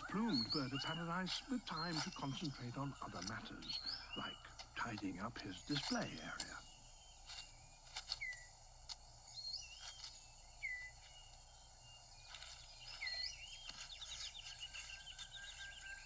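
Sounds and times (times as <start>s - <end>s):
bird chirps: 0.0s - 16.0s
birds whistling: 0.0s - 16.0s
high insect drone: 0.0s - 16.0s.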